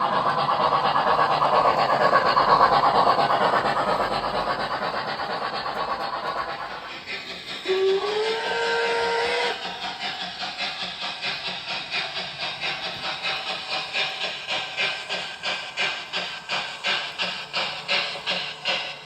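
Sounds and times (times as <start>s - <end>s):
steam chuffing: 0.0s - 19.0s
steam locomotive whistle: 7.6s - 9.8s.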